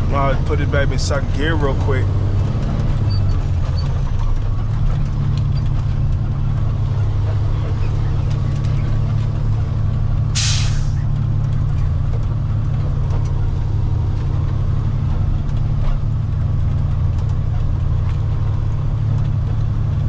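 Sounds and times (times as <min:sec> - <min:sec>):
truck engine running: 0:00.0 - 0:20.0
air brake hiss: 0:10.4 - 0:11.0.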